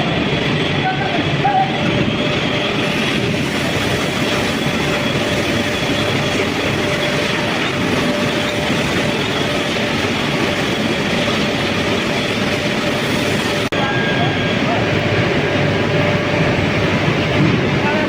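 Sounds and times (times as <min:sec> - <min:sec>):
faint high whine: 0:13.7 - 0:18.0
industrial machinery rumble: 0:13.7 - 0:18.0.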